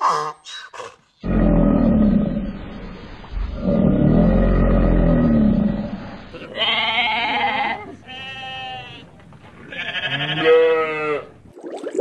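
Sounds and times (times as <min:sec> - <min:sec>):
low rumbling growl: 0:01.2 - 0:06.4
sheep bleating: 0:06.4 - 0:09.0, 0:09.7 - 0:11.3.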